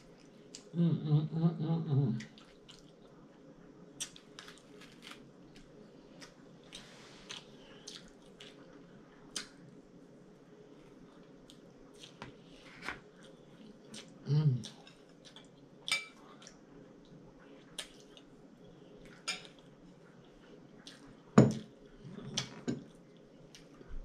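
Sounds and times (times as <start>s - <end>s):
voice humming: 0.6s - 2.4s.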